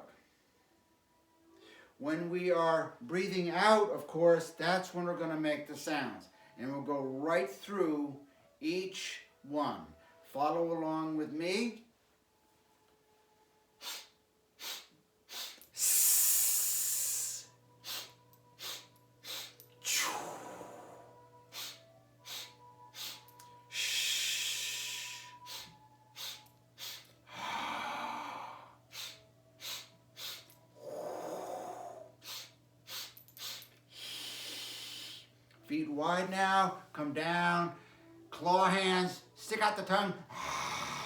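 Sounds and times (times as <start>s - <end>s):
person exhaling breathily: 13.8s - 35.2s
person sniffing in-breaths: 13.8s - 35.3s.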